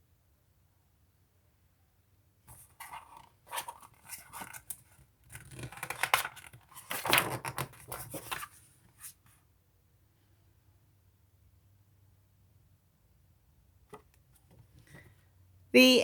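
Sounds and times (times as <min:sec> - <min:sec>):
paper rustling and crackling: 0:02.5 - 0:09.1.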